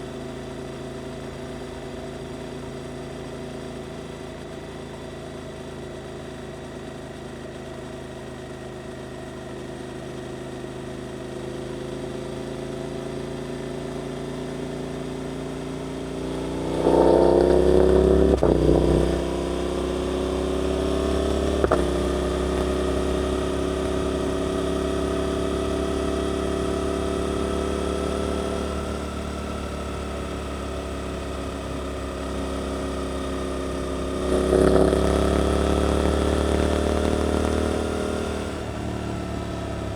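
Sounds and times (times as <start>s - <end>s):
motorcycle engine revving: 15.8s - 39.9s.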